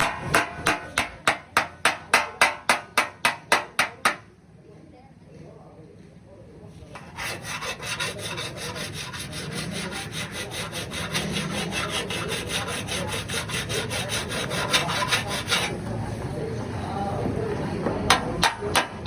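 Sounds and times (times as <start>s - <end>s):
abrasive rubbing on car panel: 7.0s - 15.8s.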